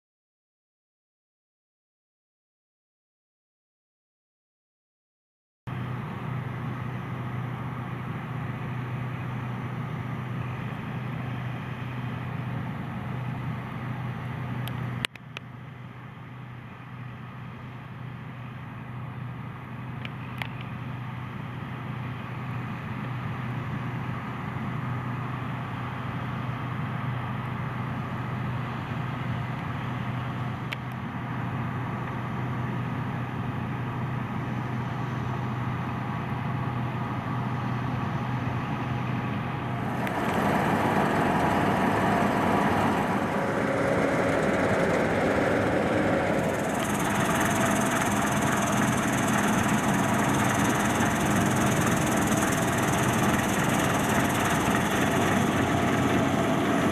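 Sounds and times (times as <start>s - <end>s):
combine harvester engine hum: 5.7s - 56.9s
machinery clatter: 39.5s - 56.9s.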